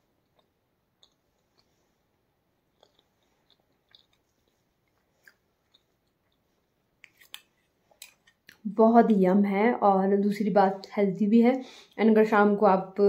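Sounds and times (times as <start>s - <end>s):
person chewing: 0.0s - 8.7s.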